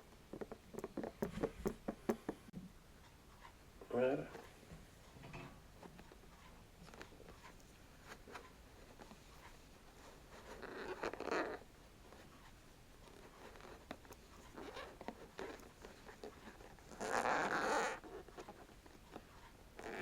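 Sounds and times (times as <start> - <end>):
scratching on pineapple skin: 5.8 - 20.0.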